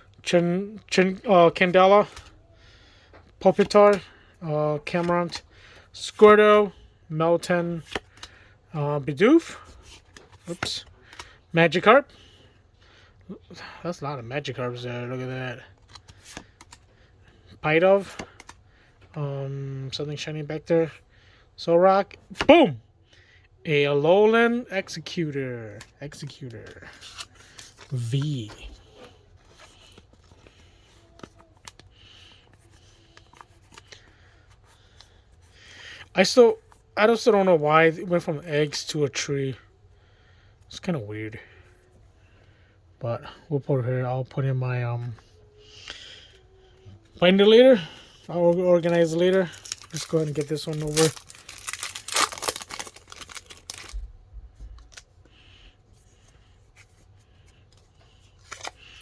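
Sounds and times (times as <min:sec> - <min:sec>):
trading cards rustling: 0:25.7 - 0:35.5, 0:47.0 - 0:54.0, 0:54.6 - 0:59.0.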